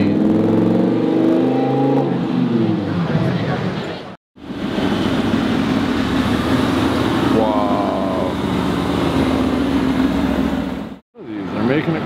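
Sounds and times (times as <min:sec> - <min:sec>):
car engine running at low revs: 0:04.4 - 0:11.0.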